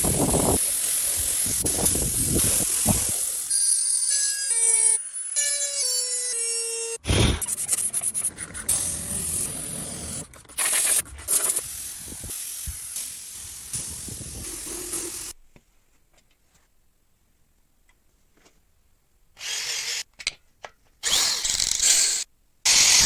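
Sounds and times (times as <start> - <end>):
hissing rubbing workshop noise: 0.0 - 3.5, 7.1 - 15.4.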